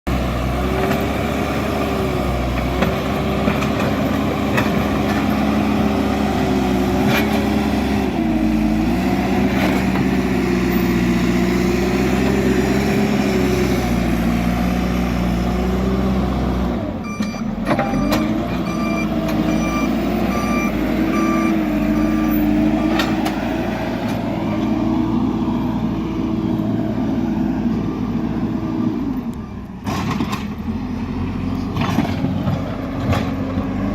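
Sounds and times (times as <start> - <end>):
diesel engine under load: 0.1 - 33.9
reversing alarm beeping: 17.0 - 23.0.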